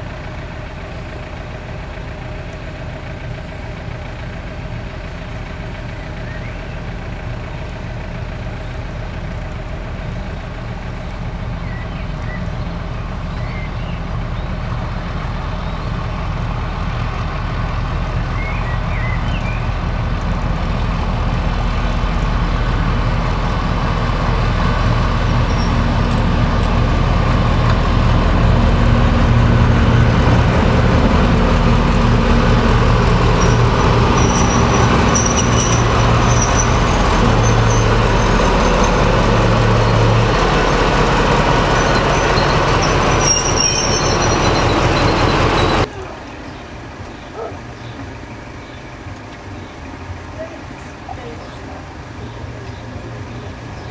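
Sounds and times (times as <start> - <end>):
diesel locomotive engine throbbing: 0.0 - 53.9.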